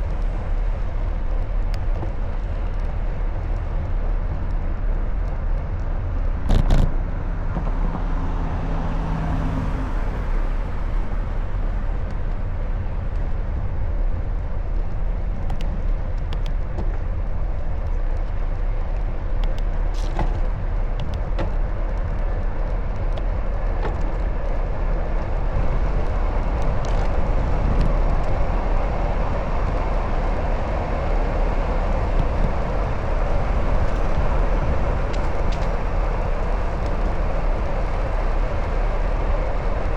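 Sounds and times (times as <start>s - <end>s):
street traffic rumble: 0.0s - 39.9s
scattered clicks: 15.4s - 17.0s, 26.0s - 28.4s, 33.8s - 37.3s.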